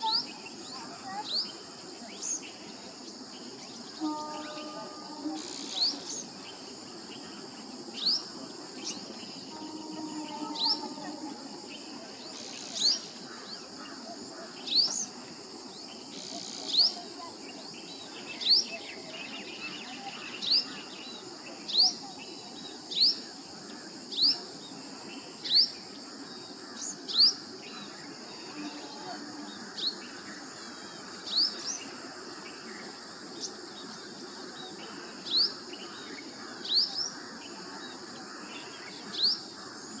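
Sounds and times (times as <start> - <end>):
insects droning: 0.0 - 40.0
bird rising call note: 9.5 - 11.4.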